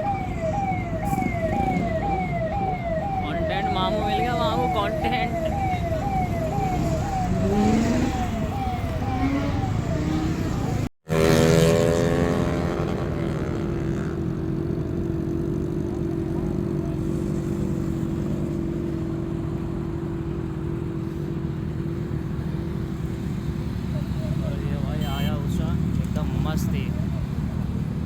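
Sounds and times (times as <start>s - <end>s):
electronic siren sweeps: 0.0s - 10.9s
vehicle engines running: 0.0s - 28.0s.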